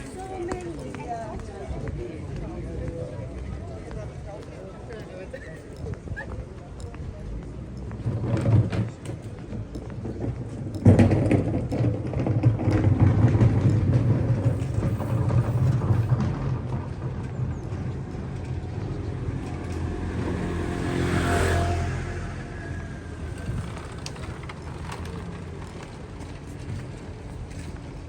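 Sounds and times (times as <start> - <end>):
traffic rumble: 0.0 - 28.0
vehicle passing by: 13.6 - 26.4.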